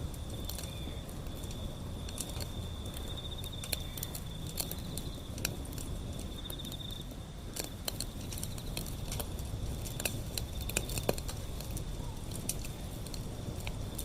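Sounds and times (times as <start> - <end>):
wood fire crackling: 0.0 - 14.0
insect trilling: 0.2 - 5.4.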